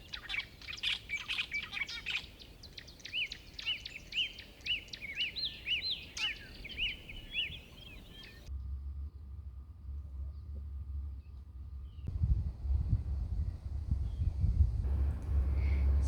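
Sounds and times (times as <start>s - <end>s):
bird chirps: 0.0s - 8.5s
bird whistled call: 0.0s - 8.5s
low steady hum: 8.0s - 16.0s.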